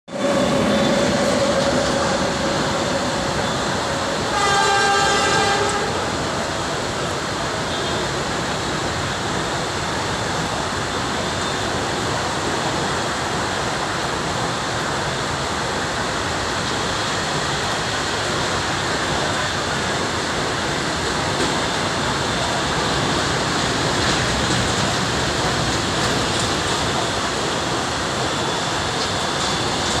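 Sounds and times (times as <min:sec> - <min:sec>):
goods train rumbling past: 0:00.1 - 0:30.0
train horn: 0:00.2 - 0:06.4.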